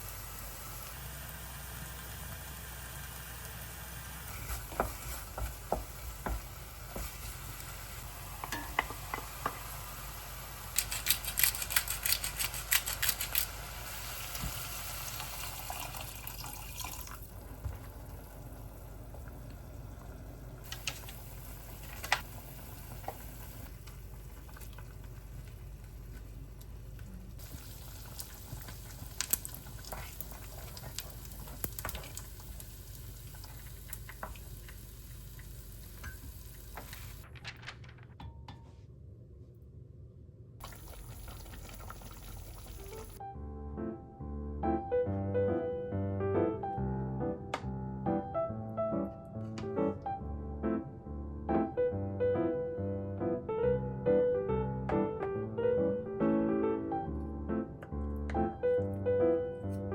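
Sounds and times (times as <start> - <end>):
utensil stirring and knocking in pan: 4.3 - 7.6, 8.3 - 9.7.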